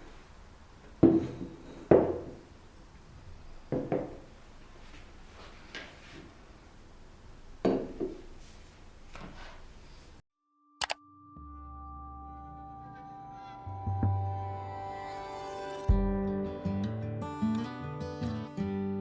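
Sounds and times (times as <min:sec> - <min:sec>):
objects knocking on hard surface: 0:01.0 - 0:02.5, 0:03.7 - 0:04.3, 0:07.6 - 0:08.3.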